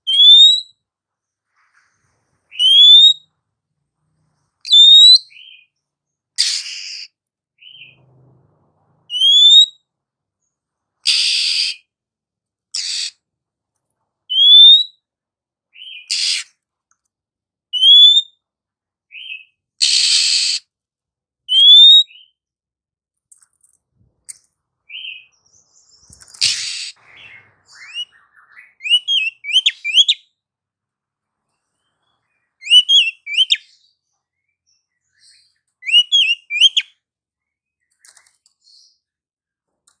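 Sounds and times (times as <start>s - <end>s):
bird whistling: 0.0s - 0.7s, 2.5s - 3.3s, 4.7s - 5.7s, 6.4s - 8.0s, 9.1s - 9.8s, 11.1s - 11.8s, 14.3s - 15.0s, 15.8s - 16.5s, 17.8s - 18.4s, 21.5s - 22.3s, 26.4s - 30.3s, 32.3s - 33.8s, 35.2s - 36.9s
harsh scratchy bird calls: 6.4s - 8.3s, 11.0s - 11.9s, 12.7s - 13.3s, 15.8s - 16.6s, 19.2s - 20.7s, 24.3s - 30.2s, 31.6s - 33.9s, 35.1s - 36.9s, 37.8s - 38.9s.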